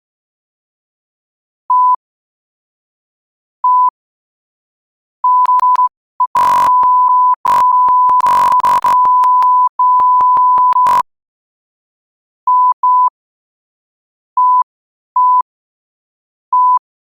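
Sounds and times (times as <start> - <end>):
electronic beep tone: 5.3 - 11.0
clicks: 6.4 - 6.8, 7.5 - 11.0.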